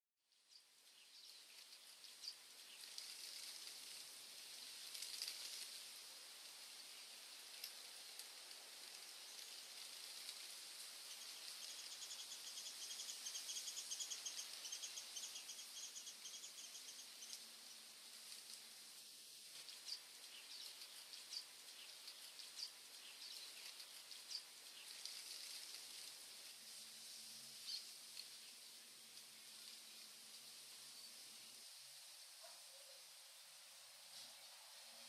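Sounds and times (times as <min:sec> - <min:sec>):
small birds singing: 0:00.3 - 0:18.9, 0:19.5 - 0:35.0
faint background hiss: 0:00.3 - 0:35.0.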